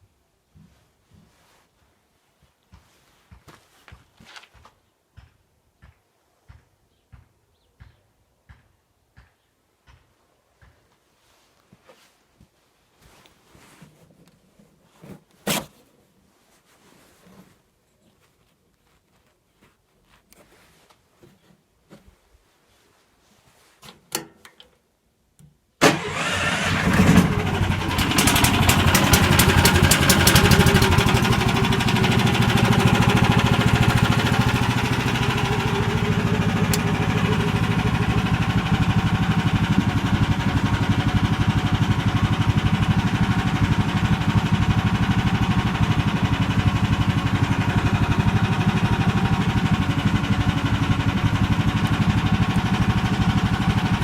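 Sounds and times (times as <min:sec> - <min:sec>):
small engine starting and running: 0:25.8 - 0:54.0.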